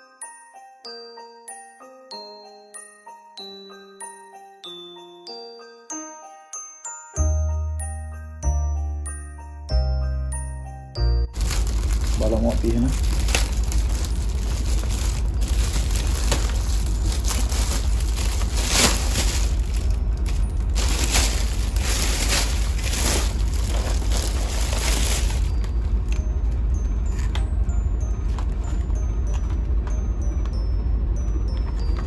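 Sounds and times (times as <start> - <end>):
wrapping paper tearing and crumpling: 11.4 - 26.2
low hum: 11.4 - 32.0.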